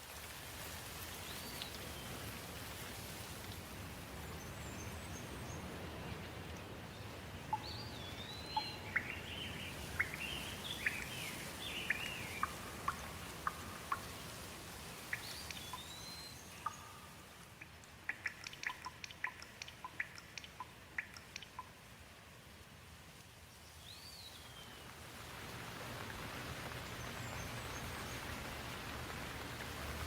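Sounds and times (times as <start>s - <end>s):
steady rain: 0.0s - 30.0s
songbirds chirping: 3.8s - 21.8s, 23.3s - 29.9s
water dripping: 5.2s - 23.4s.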